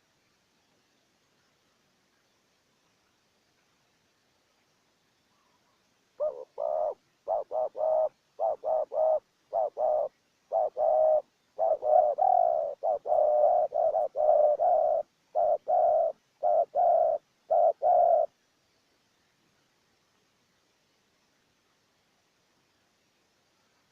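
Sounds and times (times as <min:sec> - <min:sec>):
dove cooing: 0:05.4 - 0:18.3.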